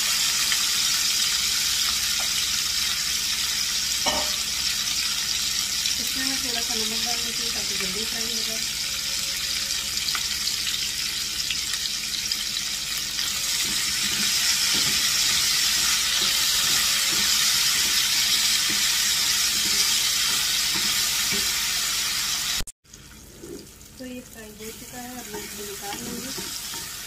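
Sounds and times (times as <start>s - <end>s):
peppers sizzling in hot oil: 0.0s - 27.0s
spatula scraping a pan: 13.2s - 21.6s, 25.2s - 27.0s.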